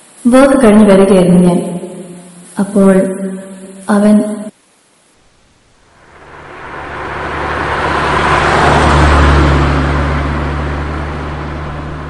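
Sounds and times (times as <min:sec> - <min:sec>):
vehicle driving past: 0:05.9 - 0:12.0.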